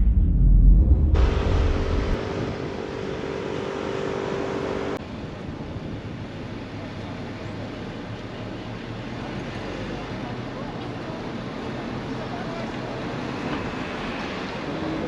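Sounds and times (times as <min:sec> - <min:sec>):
vehicle rushing noise: 0:00.0 - 0:05.0
steady hum: 0:00.0 - 0:05.2.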